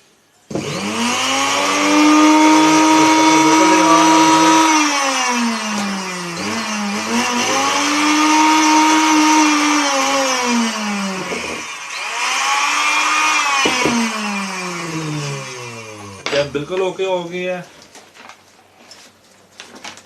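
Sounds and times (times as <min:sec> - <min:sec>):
sewing machine motor whining: 0:00.6 - 0:16.5.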